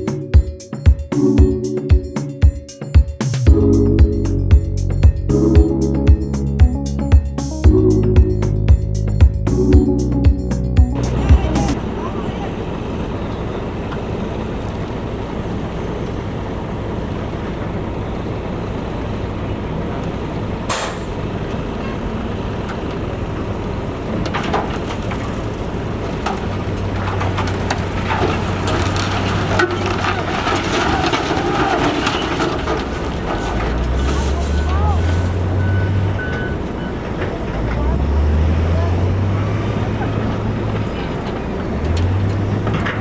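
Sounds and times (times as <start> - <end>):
diesel engine drone: 3.4 - 43.0
loud engine hum: 3.4 - 43.0
short hiss: 20.7 - 21.2
metal clanks and rattles: 26.1 - 35.6, 40.0 - 43.0.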